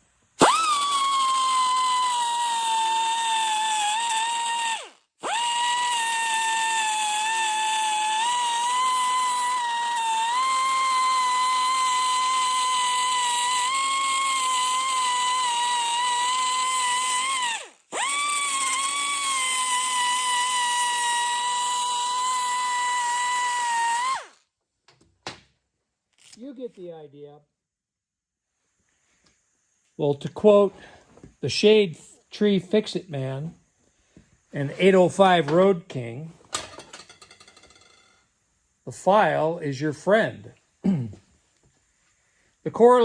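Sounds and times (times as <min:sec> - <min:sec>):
die grinder whining: 0:00.4 - 0:24.4.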